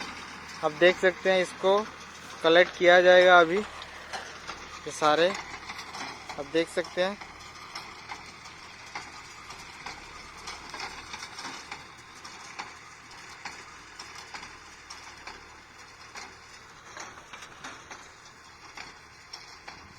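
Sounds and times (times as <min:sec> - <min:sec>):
baler humming: 0:00.0 - 0:14.2
baler clicks and rattles: 0:00.0 - 0:19.9.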